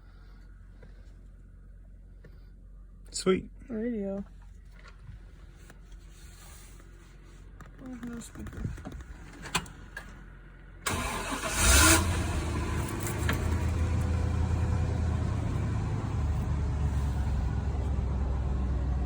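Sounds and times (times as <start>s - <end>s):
truck engine starting and idling: 9.1s - 19.0s.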